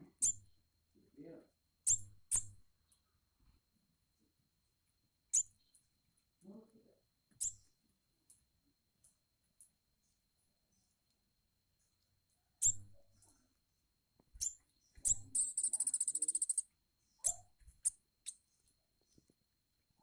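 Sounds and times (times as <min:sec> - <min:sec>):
bird chipping and trilling: 0:00.0 - 0:00.5, 0:01.8 - 0:02.6, 0:05.3 - 0:05.8, 0:07.3 - 0:07.7, 0:12.6 - 0:13.2, 0:14.3 - 0:18.4.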